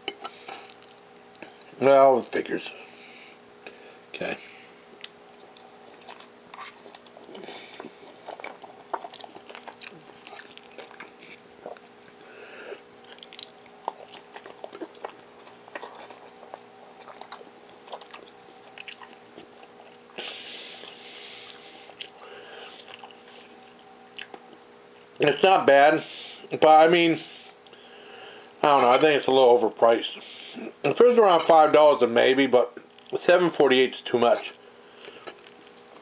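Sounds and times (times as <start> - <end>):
faint steady hum: 0.0 - 36.0
person chewing: 0.4 - 2.4, 4.9 - 24.6, 34.6 - 36.0.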